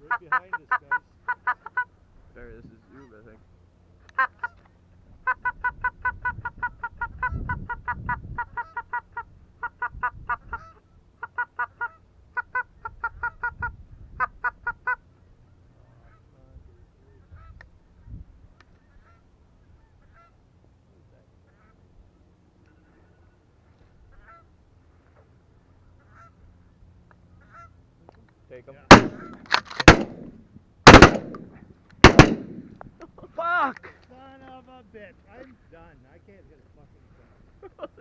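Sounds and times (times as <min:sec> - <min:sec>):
goose call honks and clucks: 0:00.0 - 0:01.9, 0:04.0 - 0:15.1, 0:18.5 - 0:20.4, 0:21.4 - 0:21.9, 0:24.1 - 0:24.6, 0:25.9 - 0:26.4, 0:27.4 - 0:27.8.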